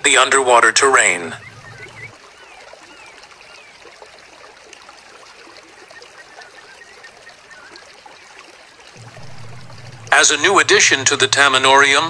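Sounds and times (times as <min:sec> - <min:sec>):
light bubbling: 0:00.0 - 0:12.0
water trickling: 0:00.0 - 0:12.0.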